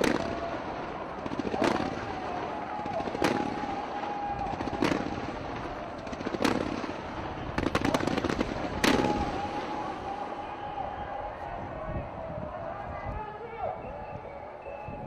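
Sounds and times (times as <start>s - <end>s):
rapid firework cracks: 0.0s - 10.7s
firework bangs: 0.0s - 10.8s
firework crackling: 0.0s - 10.8s.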